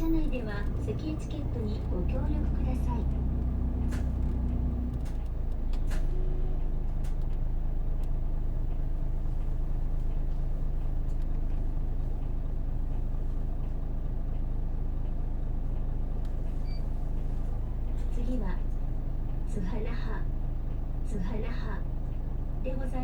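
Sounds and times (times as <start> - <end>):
road and body noise: 0.0 - 12.4
bus diesel engine running: 0.0 - 23.0.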